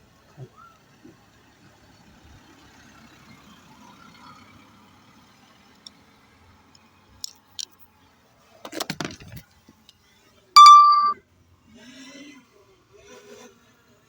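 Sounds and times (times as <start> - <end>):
small clicks and rustle of handling: 6.7 - 7.9, 8.6 - 10.0
electronic beep: 10.6 - 11.2.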